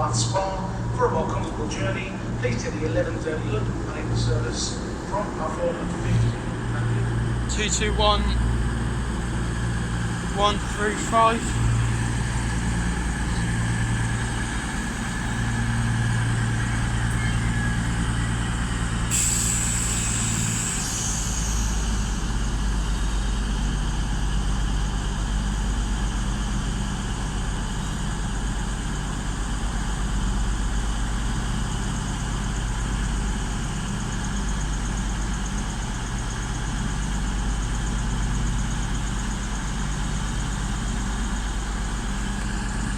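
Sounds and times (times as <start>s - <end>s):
train diesel engines idling: 0.0s - 42.9s
air hiss: 19.1s - 22.9s.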